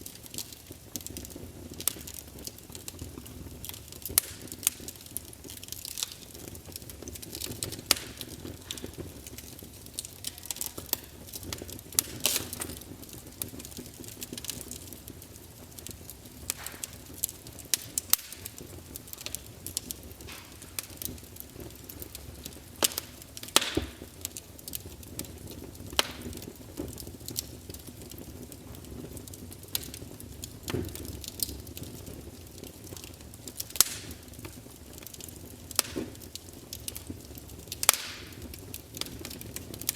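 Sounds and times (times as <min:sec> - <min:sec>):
burning wood crackling and popping: 0:00.0 - 0:39.9
low rumble of flames: 0:00.0 - 0:39.9.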